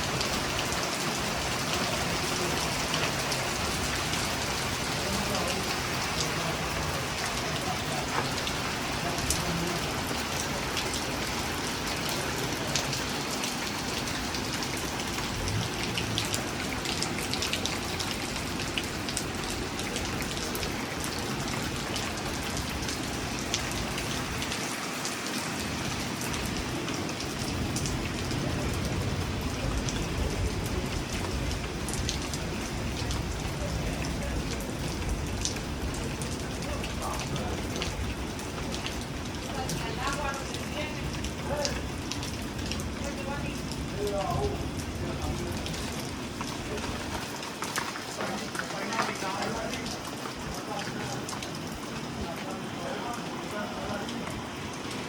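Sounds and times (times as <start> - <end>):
low rumble of wind: 0.0 - 47.6
steady rain falling: 0.0 - 55.0.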